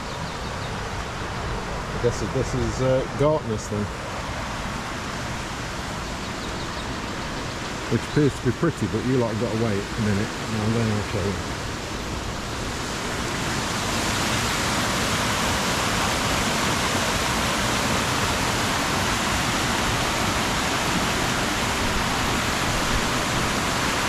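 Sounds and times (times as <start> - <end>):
river water rushing over rocks: 9.2 - 24.0.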